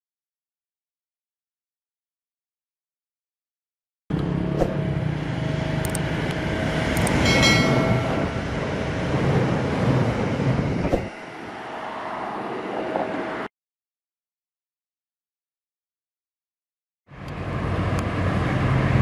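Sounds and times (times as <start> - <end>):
electric train passing: 4.1 - 13.5, 17.1 - 19.0
sharp clicks: 5.8 - 6.0, 7.0 - 7.2
brief ringing tone: 7.2 - 8.6.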